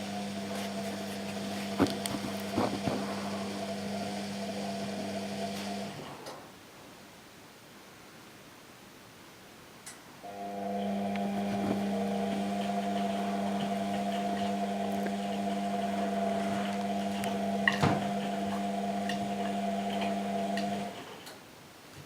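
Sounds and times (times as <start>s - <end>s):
washing machine motor humming: 0.0s - 6.1s, 10.3s - 21.1s.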